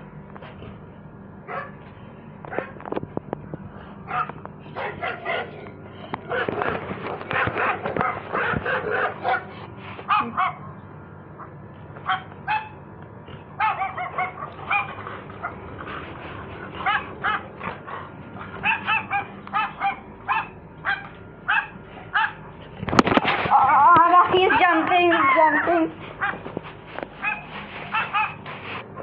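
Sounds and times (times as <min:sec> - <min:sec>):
dog barking through phone speaker: 0:04.1 - 0:05.5, 0:10.1 - 0:10.6, 0:13.6 - 0:14.9.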